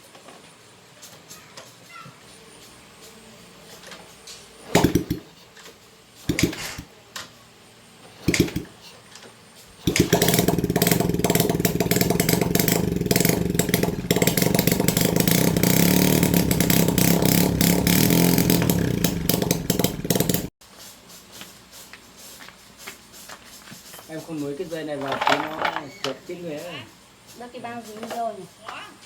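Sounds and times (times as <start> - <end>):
motorbike engine running: 4.7 - 5.3, 6.3 - 6.9, 8.2 - 8.7, 9.8 - 20.5.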